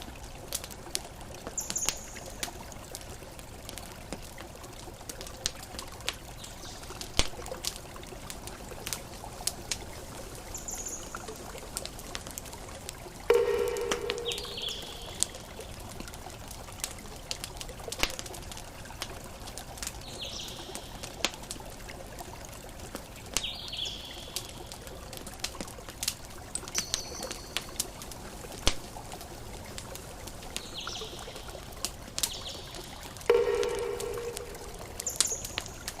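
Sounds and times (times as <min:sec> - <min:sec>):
campfire crackling and popping: 0:00.0 - 0:36.0
short bird chirps: 0:13.3 - 0:15.2
loud pitched bird call: 0:13.3 - 0:15.4
ocean waves: 0:13.3 - 0:15.5.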